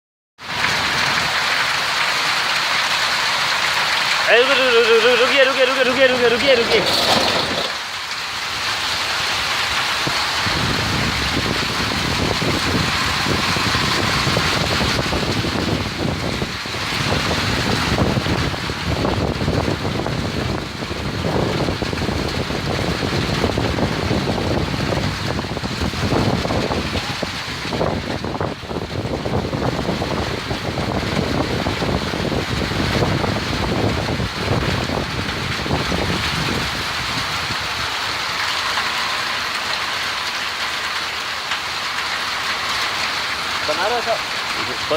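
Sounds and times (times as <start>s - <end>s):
heavy rain pouring: 0.4s - 44.9s
wind buffeting microphone: 9.0s - 38.0s.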